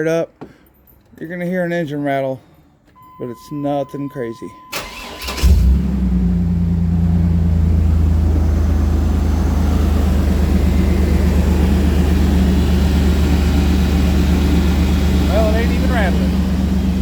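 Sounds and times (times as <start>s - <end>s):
engine idling: 4.7s - 17.0s.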